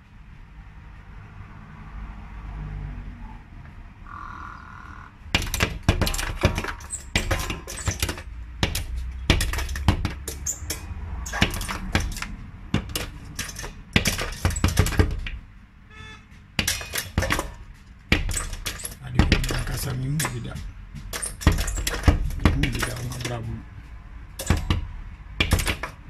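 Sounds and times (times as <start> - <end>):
brief tone: 15.9 - 16.4.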